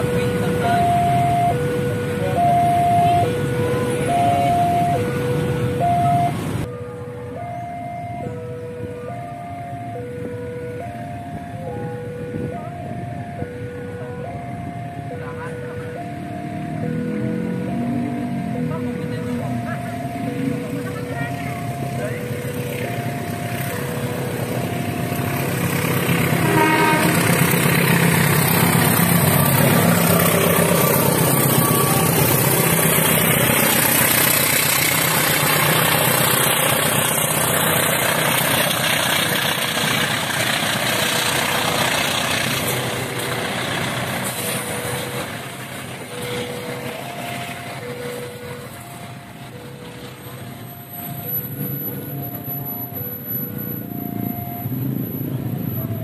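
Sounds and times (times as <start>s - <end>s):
train wheels rumbling over rails: 15.8s - 56.0s.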